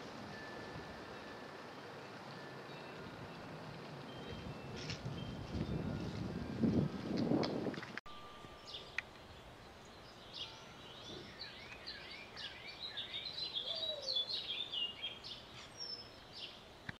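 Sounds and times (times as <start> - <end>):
birds chirping: 8.1 - 16.9.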